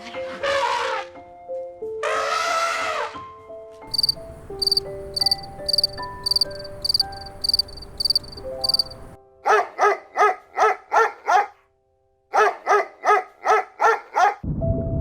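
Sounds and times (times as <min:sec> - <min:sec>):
music: 0:00.0 - 0:13.4, 0:14.4 - 0:15.0
high repeating chirps: 0:03.9 - 0:09.2.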